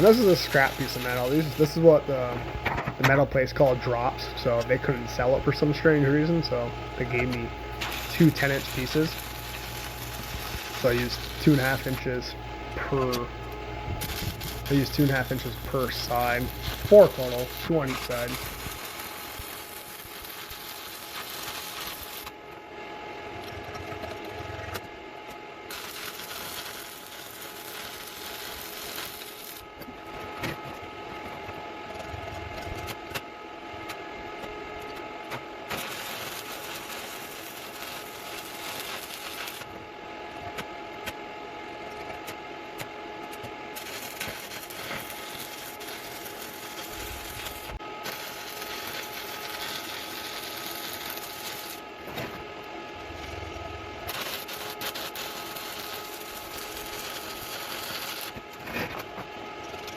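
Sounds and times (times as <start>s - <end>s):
welding arc crackling: 0.0s - 22.4s, 25.7s - 30.0s, 35.6s - 39.8s, 43.2s - 59.9s.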